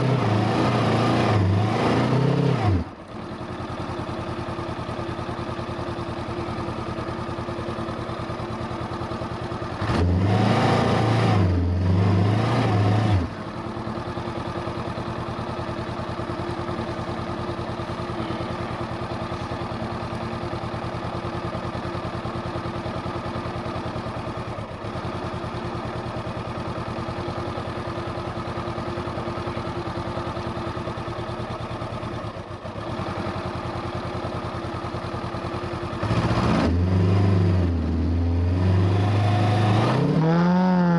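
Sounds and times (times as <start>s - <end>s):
engine revving: 0.0s - 3.0s, 9.7s - 13.4s, 36.0s - 40.9s
motorcycle engine running: 2.2s - 40.9s.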